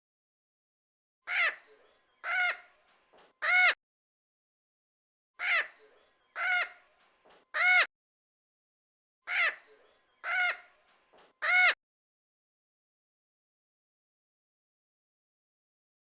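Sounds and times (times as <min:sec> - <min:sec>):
bird calling: 0:05.4 - 0:06.9.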